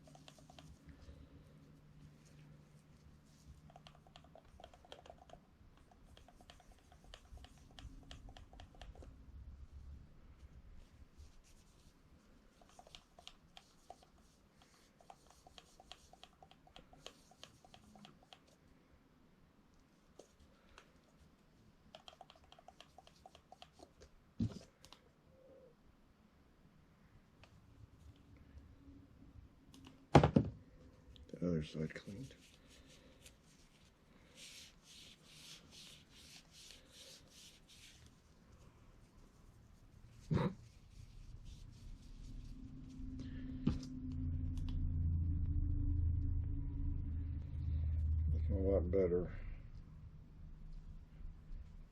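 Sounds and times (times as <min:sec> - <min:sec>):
cloth wiping glass lens: 0:00.0 - 0:09.8, 0:10.4 - 0:18.6, 0:31.9 - 0:43.9
small rubbing sounds: 0:00.0 - 0:18.8, 0:19.7 - 0:25.0, 0:31.4 - 0:44.0.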